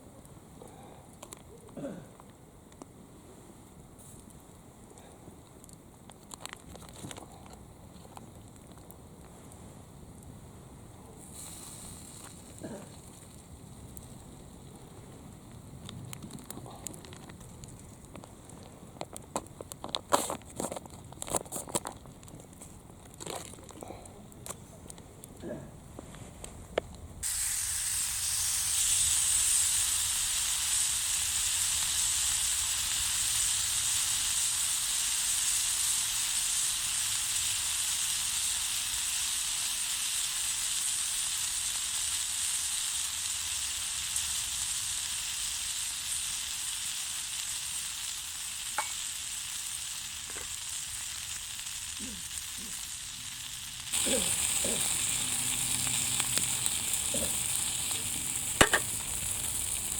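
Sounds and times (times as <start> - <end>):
faint fire crackles: 0.0 - 59.9
food sizzling: 11.2 - 14.8, 27.2 - 59.9.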